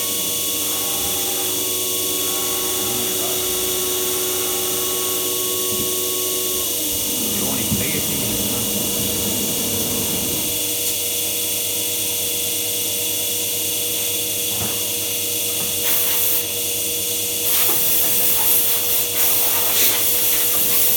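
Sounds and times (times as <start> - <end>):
machine spindle whining: 0.4 - 11.0.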